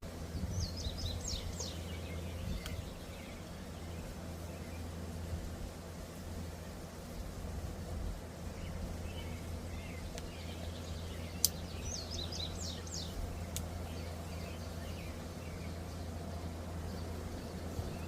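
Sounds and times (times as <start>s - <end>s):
low background hum: 0.0s - 18.0s
bird chirping: 0.3s - 5.1s, 8.4s - 18.0s
sharp clicks: 11.4s - 11.6s, 13.5s - 13.7s.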